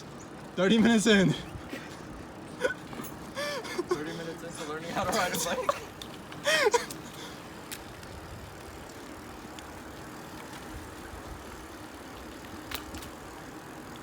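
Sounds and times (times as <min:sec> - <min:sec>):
bicycle road noise: 0:00.0 - 0:14.0
faint ticks: 0:06.0 - 0:08.2, 0:08.8 - 0:10.8, 0:12.1 - 0:14.0.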